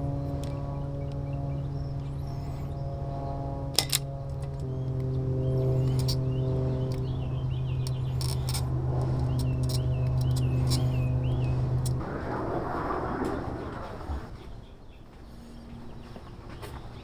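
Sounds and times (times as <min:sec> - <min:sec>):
loud low drone: 0:00.0 - 0:14.6
birds chirping: 0:00.0 - 0:17.0
sharp clicks: 0:03.7 - 0:12.0.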